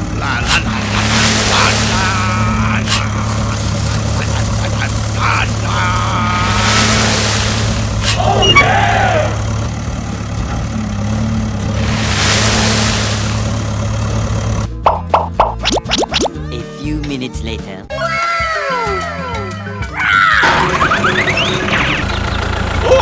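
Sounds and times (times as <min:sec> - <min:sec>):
heavy truck engine running: 0:00.0 - 0:15.4, 0:20.4 - 0:23.0
air brakes hissing: 0:00.2 - 0:09.8, 0:11.6 - 0:14.2.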